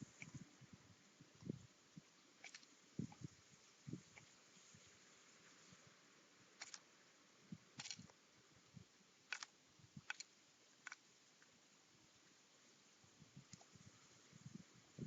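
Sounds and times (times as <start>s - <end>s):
faint sharp clicks: 9.3s - 11.5s, 13.5s - 13.8s.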